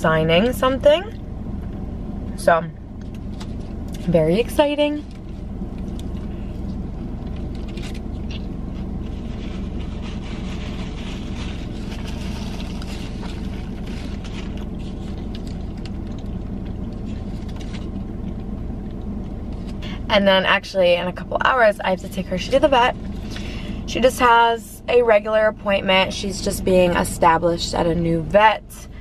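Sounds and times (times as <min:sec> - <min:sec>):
low car hum: 0:00.0 - 0:29.0
person chewing a burger: 0:05.1 - 0:19.0
foil crinkling: 0:07.0 - 0:18.2.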